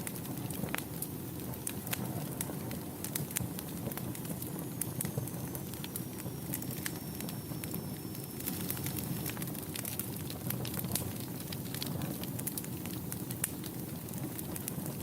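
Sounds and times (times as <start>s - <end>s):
wood fire crackling and popping: 0.0s - 15.0s
thin high whistle: 5.1s - 9.3s.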